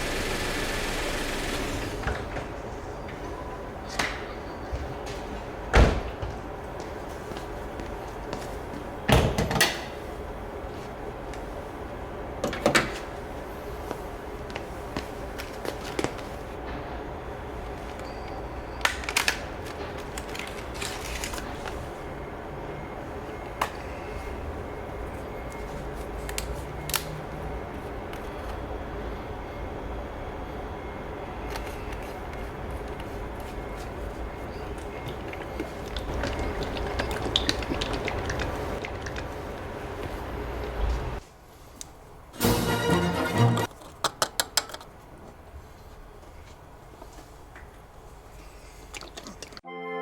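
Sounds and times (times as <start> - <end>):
hard objects clicking and knocking: 43.6 - 45.0.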